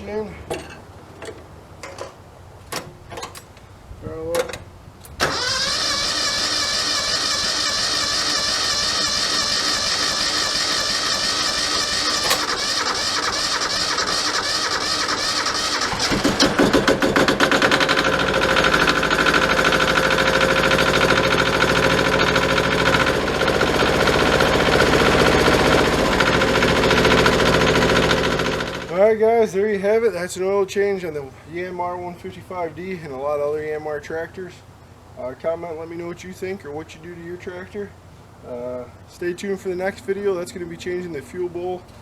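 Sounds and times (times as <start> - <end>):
diesel engine cranking: 4.4 - 29.1
diesel engine running: 5.2 - 29.0.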